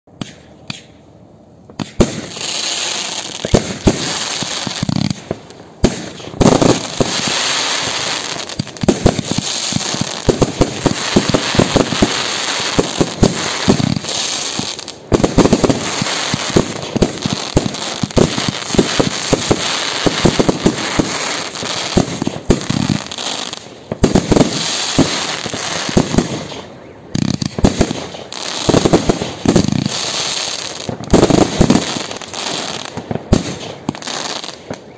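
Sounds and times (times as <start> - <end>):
fireworks crackling: 1.7 - 34.9.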